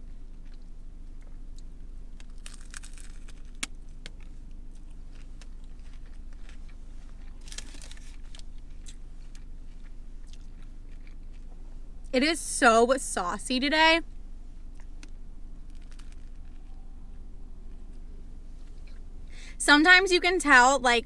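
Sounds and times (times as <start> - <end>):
steady low hum: 0.0 - 21.0
crunching hard taco shell: 1.2 - 11.5, 14.8 - 16.7.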